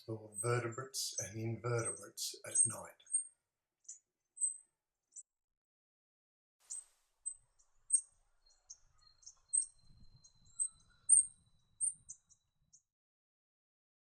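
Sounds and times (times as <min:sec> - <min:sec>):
high-pitched bird chirps: 0:07.9 - 0:12.4.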